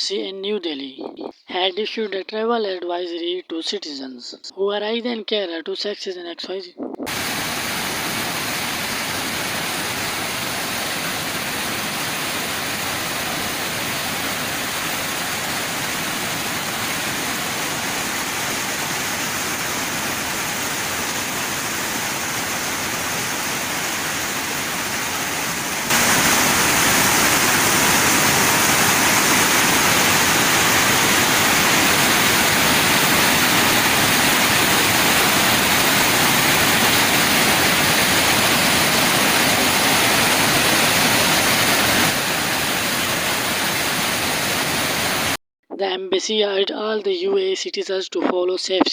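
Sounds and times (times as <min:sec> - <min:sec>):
floodwater rushing: 0:07.1 - 0:45.4.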